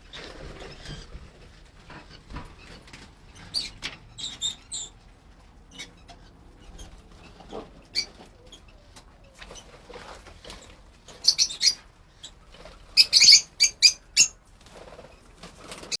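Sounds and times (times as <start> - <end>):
birds chirping: 2.6 - 9.8, 10.6 - 15.1.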